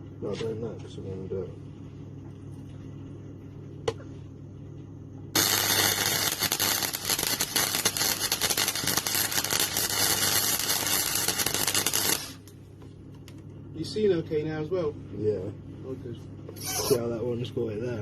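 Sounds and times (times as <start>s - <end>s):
low steady hum: 0.0s - 18.0s
welding arc crackling and sizzling: 5.4s - 12.6s.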